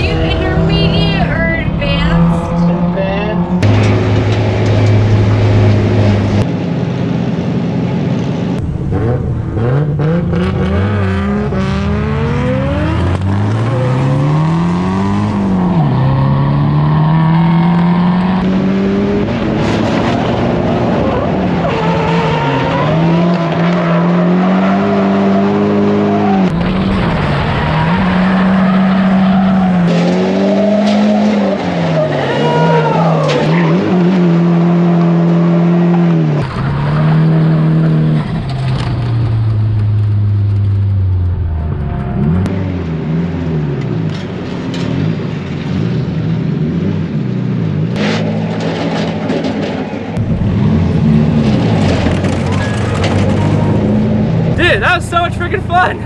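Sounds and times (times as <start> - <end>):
car engine revving: 0.0 - 6.5, 8.6 - 26.0.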